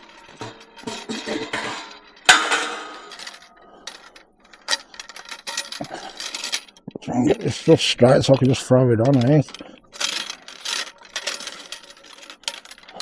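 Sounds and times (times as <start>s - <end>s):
scrap metal clanking: 0.0s - 6.8s.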